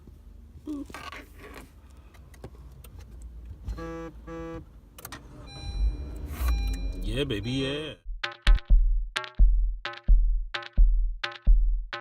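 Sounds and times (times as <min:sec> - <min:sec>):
car engine rumble: 0:00.0 - 0:07.5
car horn beeps: 0:03.7 - 0:04.7.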